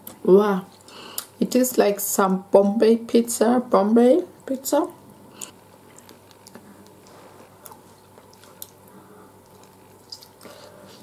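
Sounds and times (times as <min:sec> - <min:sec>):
person chewing: 0:05.3 - 0:11.0.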